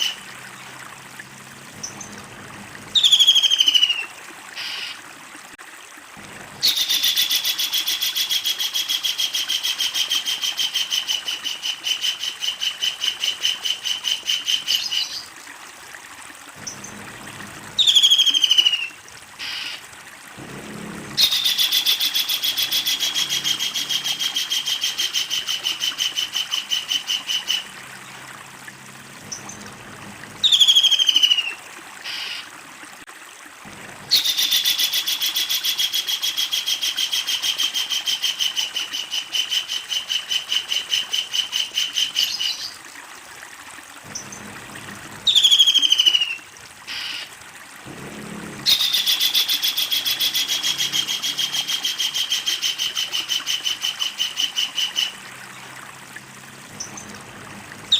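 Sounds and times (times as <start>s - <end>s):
kingfisher rolling calls: 21.0s - 27.7s, 48.6s - 55.2s.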